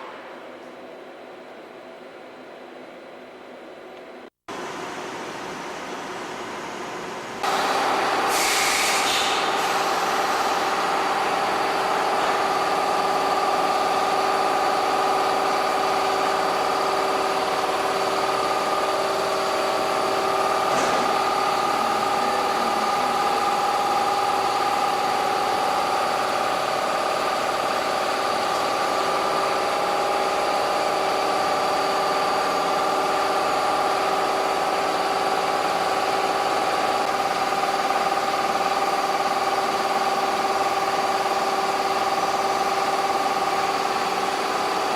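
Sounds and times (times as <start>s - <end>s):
woodworking machine whining: 7.4s - 44.9s
short hiss: 8.3s - 10.0s.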